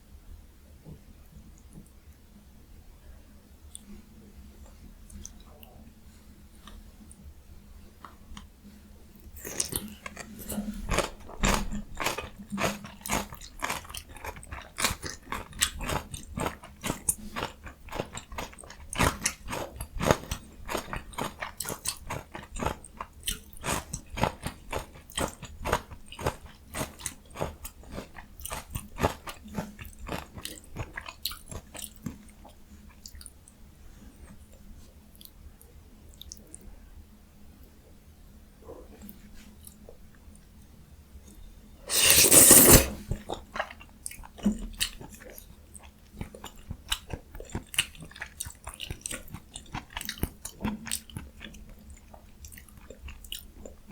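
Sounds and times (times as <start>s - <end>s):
crunchy chewing: 41.9s - 43.0s.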